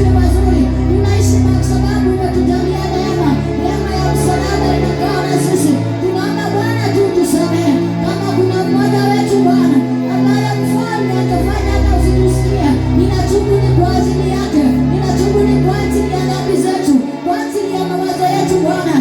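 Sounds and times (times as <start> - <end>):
deep bass note: 0.0 - 4.4, 11.2 - 16.0
keyboard chords: 0.0 - 19.0.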